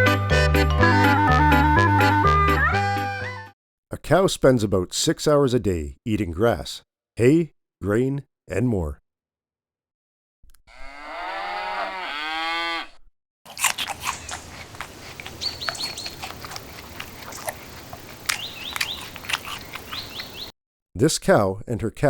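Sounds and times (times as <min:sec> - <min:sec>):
cow mooing: 0:10.7 - 0:13.0
small birds chirping: 0:13.5 - 0:20.5.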